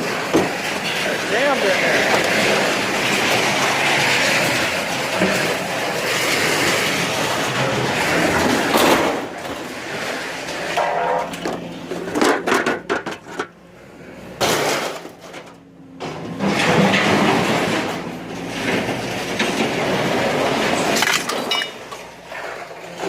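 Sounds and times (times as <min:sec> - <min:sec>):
metal crash: 0:00.0 - 0:13.6, 0:14.3 - 0:22.3
metal clattering and scraping: 0:00.0 - 0:23.0
scrap metal clanking and rattling: 0:00.0 - 0:23.0.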